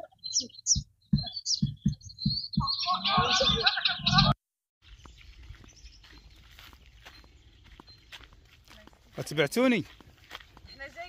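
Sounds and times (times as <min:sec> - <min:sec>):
small birds chirping: 0:00.0 - 0:11.0
soft low thumps: 0:00.5 - 0:04.4.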